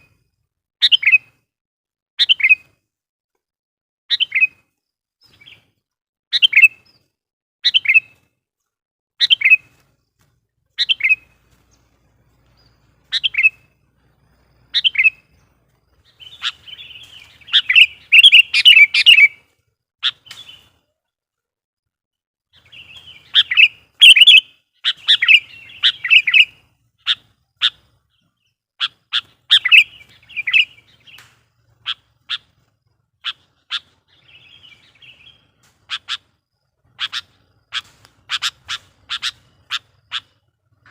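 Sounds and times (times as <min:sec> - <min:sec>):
bird chattering song: 0:00.8 - 0:01.3, 0:04.1 - 0:04.6, 0:06.3 - 0:08.2, 0:09.2 - 0:09.8, 0:10.8 - 0:19.4, 0:20.0 - 0:20.8, 0:22.5 - 0:40.9
bird calling sharp notes: 0:16.1 - 0:19.4, 0:22.7 - 0:27.8, 0:28.8 - 0:31.2, 0:36.9 - 0:40.9.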